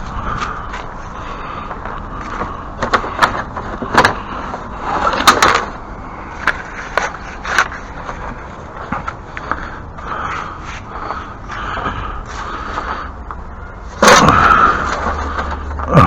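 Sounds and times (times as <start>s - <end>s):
objects knocking and clattering: 1.7s - 5.8s.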